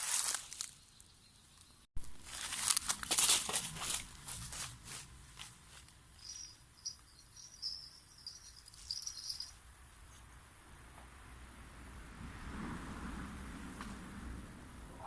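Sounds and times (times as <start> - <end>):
cricket chirping: 0.4 - 1.9, 5.4 - 12.1
rustling and handling noises: 2.0 - 6.3.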